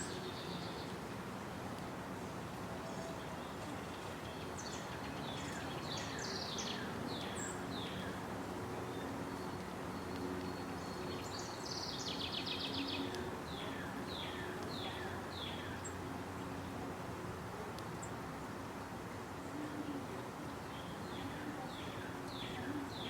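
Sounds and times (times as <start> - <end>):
outdoor background hiss: 0.0 - 23.0
small birds chirping: 2.8 - 16.7, 19.4 - 23.0.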